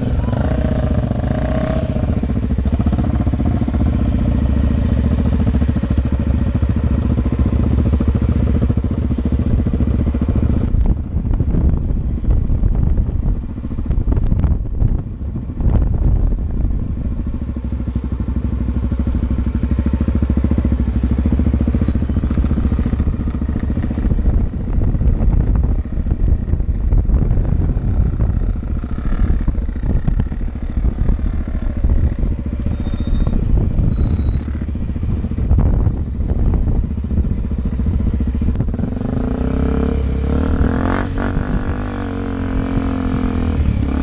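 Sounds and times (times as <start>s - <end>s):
motorcycle engine running: 0.0s - 44.0s
rattle: 11.6s - 41.8s.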